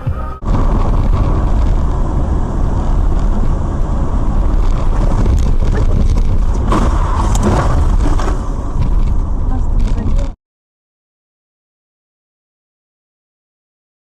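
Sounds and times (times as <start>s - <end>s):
moving vehicle rumble: 0.0s - 10.4s
wind buffeting microphone: 0.0s - 10.4s.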